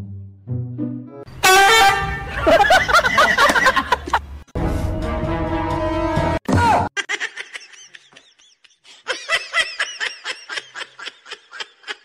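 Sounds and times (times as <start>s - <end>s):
person giggling: 2.4s - 4.2s, 7.0s - 12.0s.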